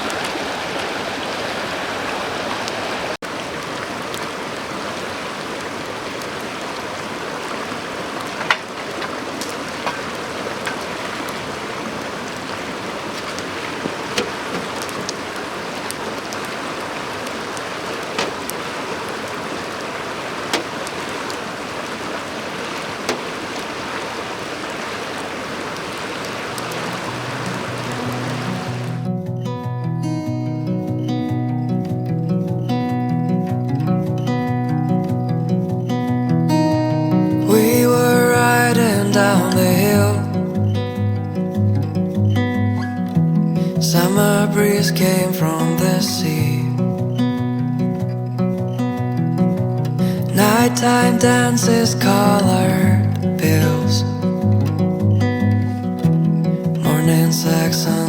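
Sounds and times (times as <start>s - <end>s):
river rushing over stones: 0.0s - 29.1s, 37.4s - 40.5s, 43.7s - 46.7s, 50.0s - 53.9s, 56.8s - 58.0s
sharp pops: 13.0s - 19.8s, 20.4s - 22.0s, 22.8s - 23.9s.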